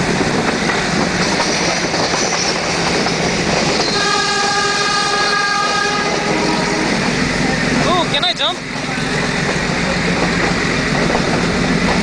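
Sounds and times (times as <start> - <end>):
train wheels rumbling: 0.0 - 12.0
train horn blast: 3.8 - 7.1.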